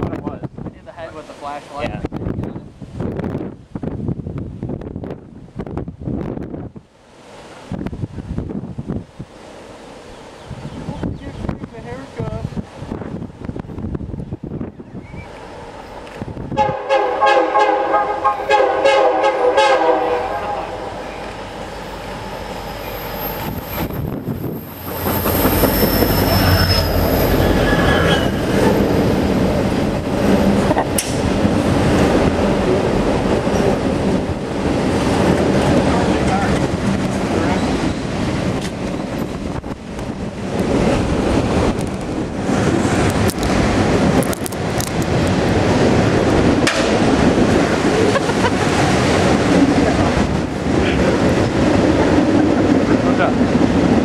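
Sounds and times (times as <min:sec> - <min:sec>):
freight train rumbling past: 0:00.0 - 0:54.0
train wheel squeals: 0:22.3 - 0:28.8
sharp clicks of train wheels: 0:22.4 - 0:27.1, 0:30.5 - 0:32.3, 0:38.4 - 0:45.6, 0:46.5 - 0:47.7.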